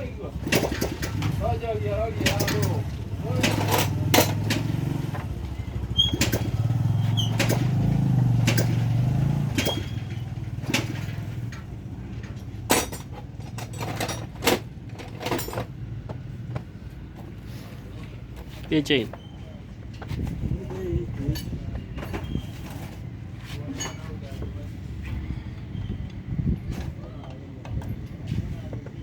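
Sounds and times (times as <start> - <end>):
small engine running: 0.4 - 11.5
tools knocking on metal: 2.2 - 5.3.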